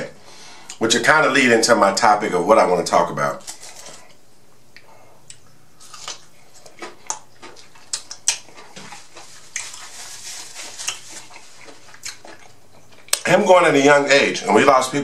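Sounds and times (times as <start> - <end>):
chewing with mouth clicks: 4.8 - 13.3.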